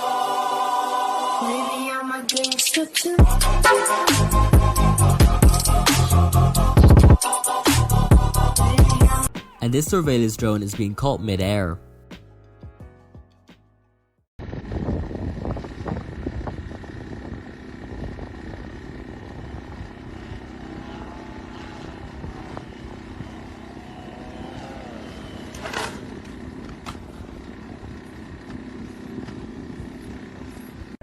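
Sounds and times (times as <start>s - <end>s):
drone propellers humming: 2.9s - 9.3s, 14.4s - 31.0s
wind noise: 6.8s - 7.2s, 14.4s - 20.9s, 21.6s - 23.6s.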